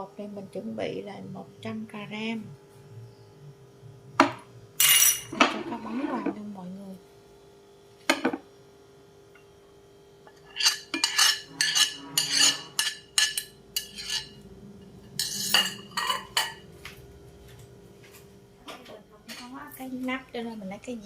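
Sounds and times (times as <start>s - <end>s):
utensil clinking against bowl: 10.3s - 14.4s, 15.1s - 16.6s.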